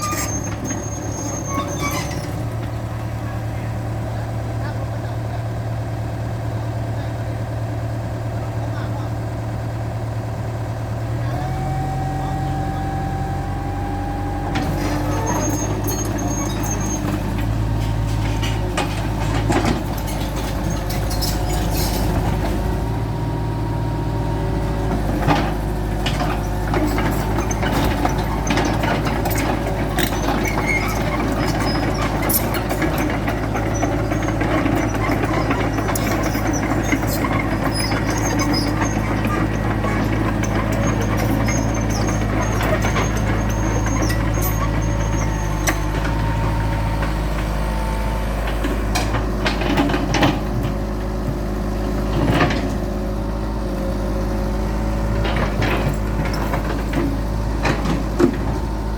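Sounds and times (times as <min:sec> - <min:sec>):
excavator diesel engine under load: 0:00.0 - 0:58.9
hydraulic whine: 0:11.3 - 0:23.3
knocks and clanks: 0:14.4 - 0:23.0, 0:24.8 - 0:58.9.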